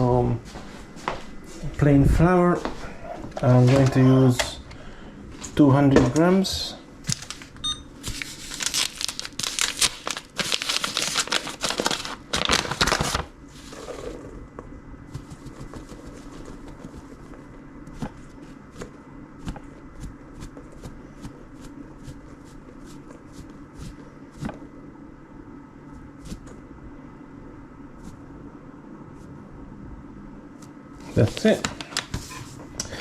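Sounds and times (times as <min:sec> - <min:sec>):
steady low hum: 0:00.0 - 0:33.0
flour taps and rustles: 0:15.1 - 0:24.6.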